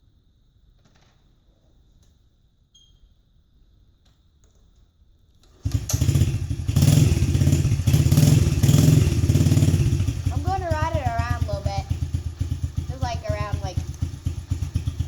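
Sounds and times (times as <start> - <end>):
dirt bike engine running: 5.6 - 15.0.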